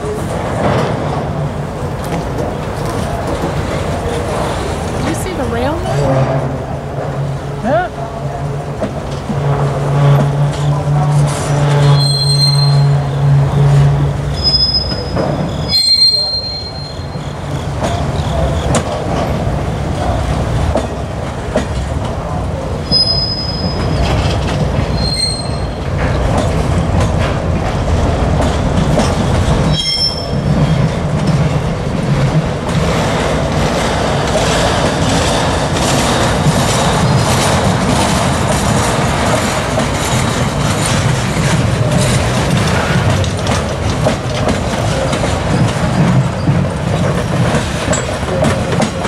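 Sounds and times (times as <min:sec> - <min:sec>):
steel wheels rumbling on rails: 0:00.0 - 0:49.0
high-pitched wheel squeals: 0:11.6 - 0:13.2, 0:14.3 - 0:17.4, 0:22.9 - 0:24.1, 0:25.0 - 0:25.8, 0:29.7 - 0:30.5.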